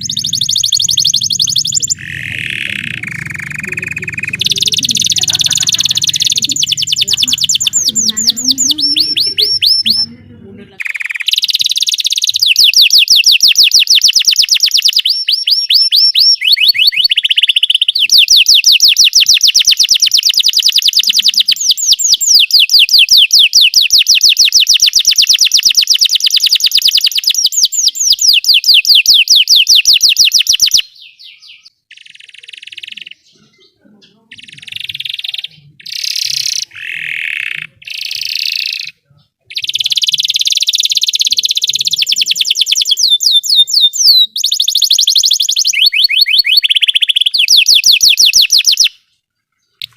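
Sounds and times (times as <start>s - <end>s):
low sound: 0.0s - 10.8s
canary singing rolling trills: 0.0s - 49.9s.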